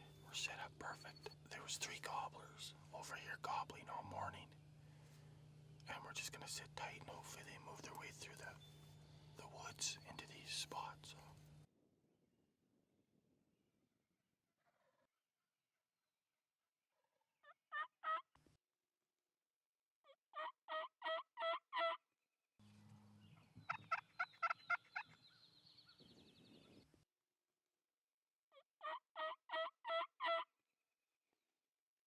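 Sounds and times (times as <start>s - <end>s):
wild turkey calling: 0.0s - 4.5s, 23.3s - 26.2s
background hiss and low hum: 0.0s - 11.7s.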